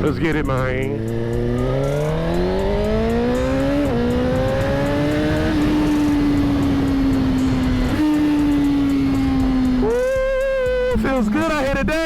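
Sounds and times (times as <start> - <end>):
motorcycle engine accelerating: 0.0 - 11.8.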